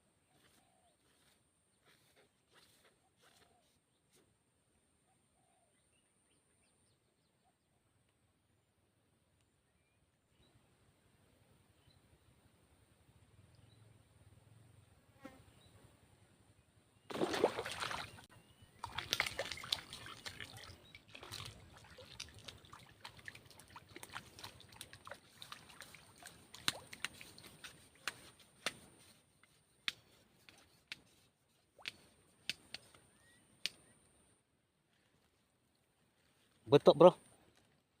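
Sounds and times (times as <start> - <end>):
water splashing: 17.1 - 28.2.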